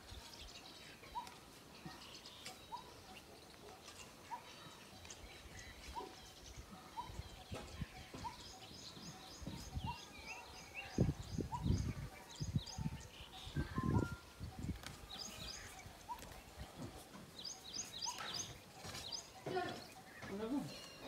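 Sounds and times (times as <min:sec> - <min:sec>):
high bird chirps: 0:17.4 - 0:21.0.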